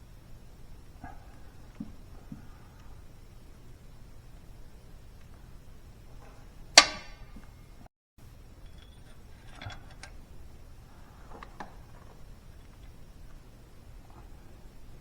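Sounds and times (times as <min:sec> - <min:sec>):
sharp ringing clank: 0:06.8 - 0:07.7.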